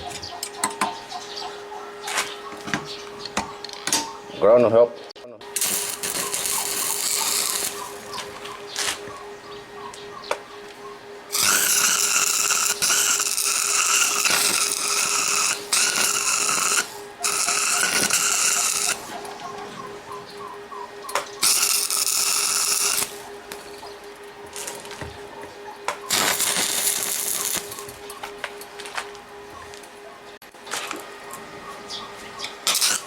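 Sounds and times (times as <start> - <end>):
steady low hum: 0.0 - 33.0
welding arc crackling: 5.4 - 9.3, 10.3 - 30.0, 32.6 - 33.0.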